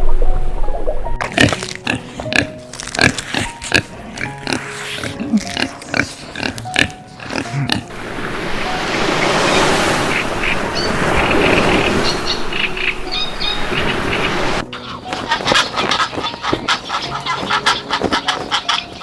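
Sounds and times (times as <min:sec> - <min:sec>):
music: 0:00.0 - 0:09.4, 0:12.6 - 0:19.0
steady rushing noise: 0:07.9 - 0:14.7.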